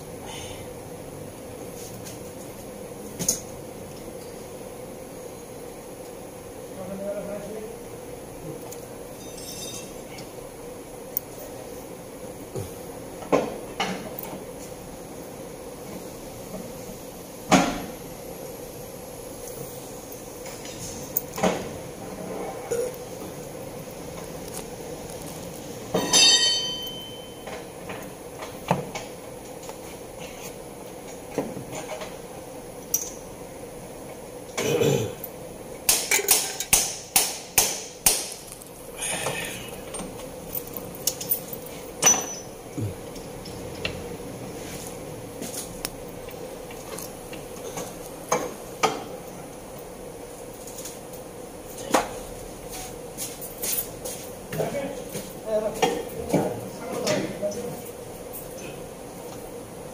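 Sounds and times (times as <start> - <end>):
faint steady hum: 0.0 - 59.9
metal tools clinking: 9.2 - 10.0, 26.0 - 27.4, 39.9 - 42.6
ringing metallic clang: 9.2 - 10.0, 26.0 - 27.5, 42.0 - 42.6.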